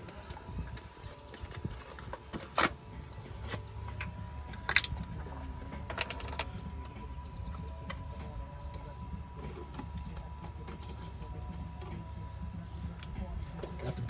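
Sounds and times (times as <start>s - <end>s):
steady low rumble: 0.0s - 14.0s
handling clicks and knocks: 5.8s - 6.9s.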